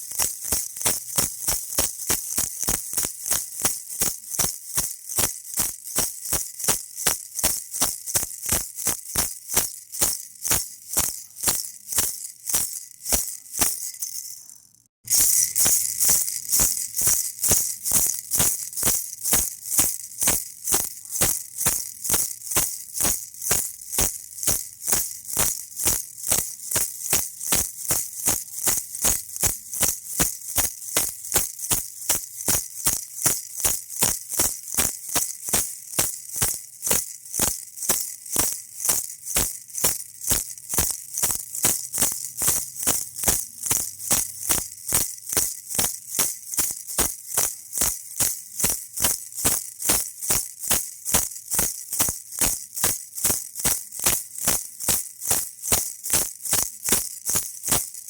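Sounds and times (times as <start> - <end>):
baby rattle shaking: 0.0 - 58.0.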